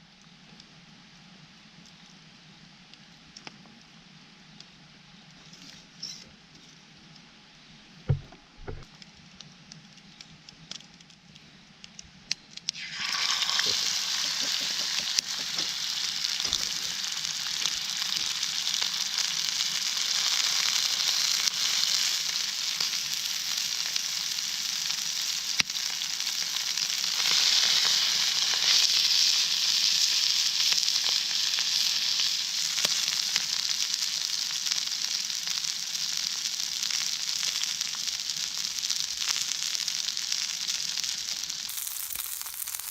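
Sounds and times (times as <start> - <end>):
steak sizzling in a skillet: 12.7 - 42.9.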